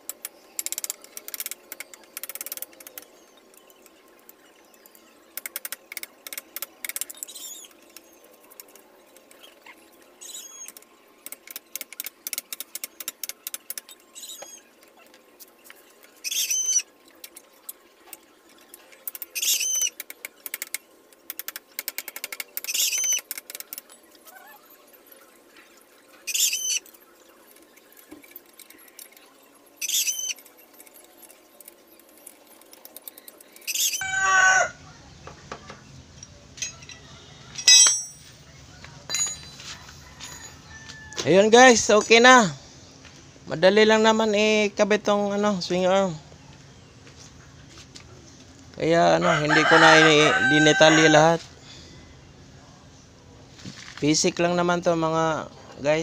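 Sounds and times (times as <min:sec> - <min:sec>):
bird calling: 0:16.2 - 0:16.9.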